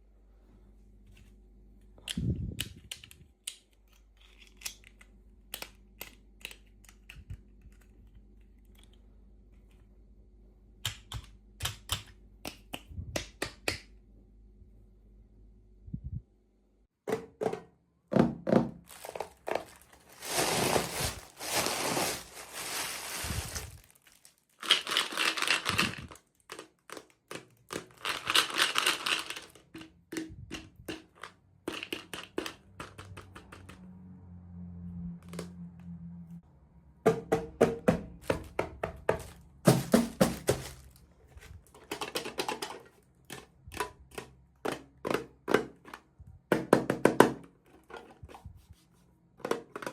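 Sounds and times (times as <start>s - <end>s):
plastic pieces clicking and tapping: 2.0s - 9.0s, 10.8s - 14.0s, 24.6s - 33.8s, 41.6s - 48.1s
plastic packaging crinkling and tearing: 18.9s - 27.1s, 39.7s - 41.0s.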